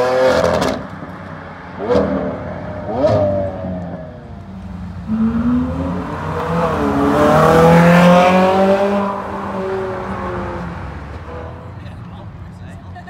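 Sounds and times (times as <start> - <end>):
car engine accelerating past: 5.0 - 11.0.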